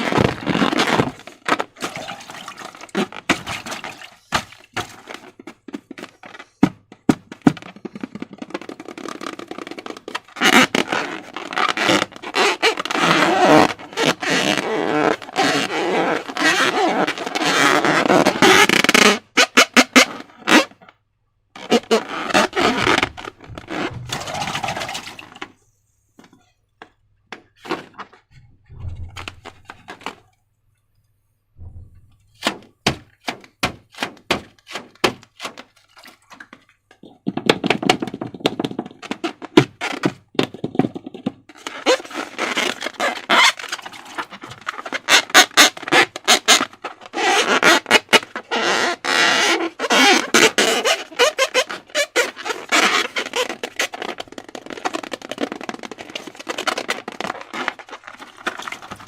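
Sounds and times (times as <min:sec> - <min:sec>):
wet slime squelching: 0:55.4 - 0:59.0.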